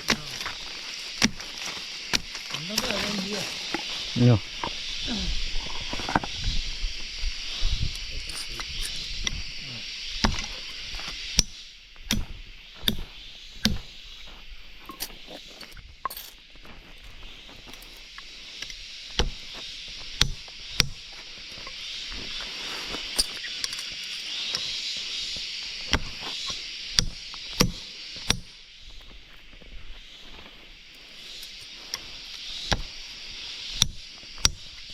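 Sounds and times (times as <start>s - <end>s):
high insect drone: 0.0s - 34.9s
sharp knocks and clicks: 10.2s - 10.5s.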